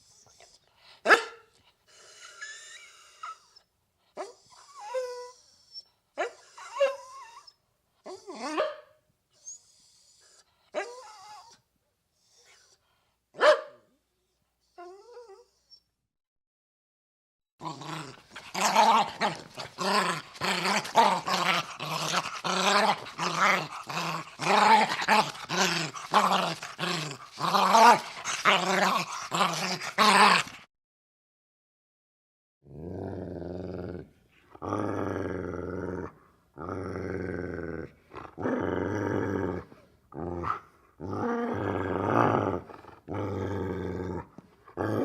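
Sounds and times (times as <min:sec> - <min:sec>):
dog whining: 0:02.0 - 0:08.8, 0:09.4 - 0:11.6, 0:14.2 - 0:16.0
dog growling: 0:17.6 - 0:30.7, 0:32.7 - 0:45.0.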